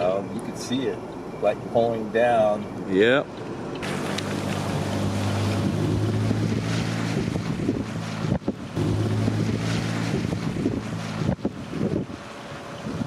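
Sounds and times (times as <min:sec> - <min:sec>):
moving vehicle hum: 0:00.0 - 0:13.0
wind rushing over microphone: 0:03.5 - 0:13.0.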